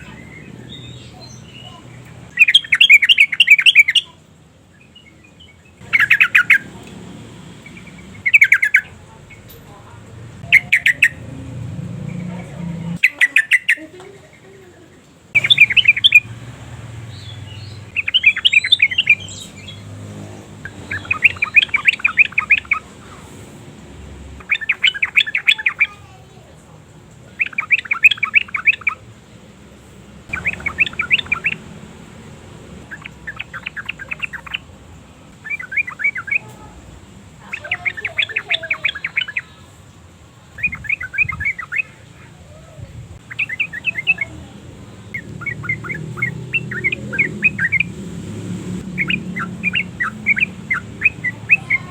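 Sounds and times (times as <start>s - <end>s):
bulbul chattering calls: 0.0s - 4.2s, 5.5s - 6.9s, 7.6s - 11.3s, 12.1s - 14.0s, 15.3s - 20.0s, 20.6s - 23.3s, 24.4s - 26.4s, 27.3s - 29.1s, 30.3s - 31.8s, 32.8s - 34.8s, 35.4s - 39.7s, 40.5s - 42.3s, 43.2s - 51.9s.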